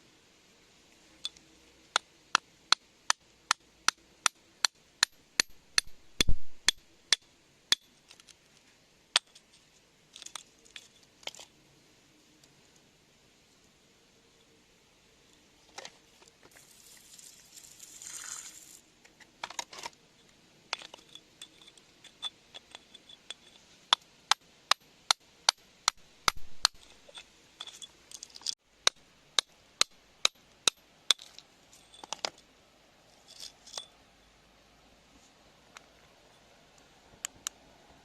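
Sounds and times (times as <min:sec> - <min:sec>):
tool scraping rock: 0:20.8 - 0:24.0, 0:25.5 - 0:28.6
hand tools tapping rock: 0:24.7 - 0:32.4.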